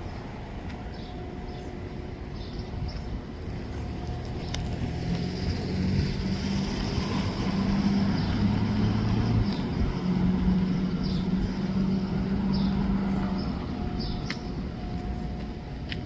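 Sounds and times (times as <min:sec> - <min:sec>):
train engine hum: 0:08.6 - 0:16.0.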